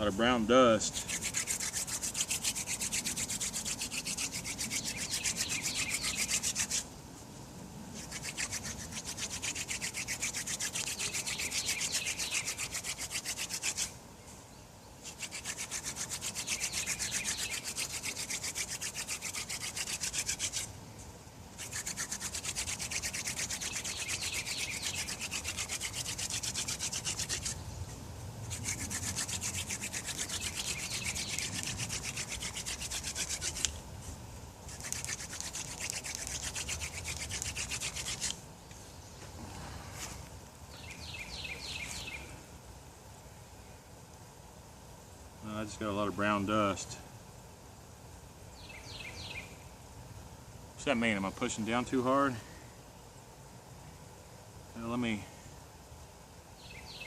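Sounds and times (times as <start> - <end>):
wood rubbing on wood: 0.8 - 6.9, 8.0 - 14.0, 15.0 - 20.7, 21.6 - 33.8, 34.7 - 38.4.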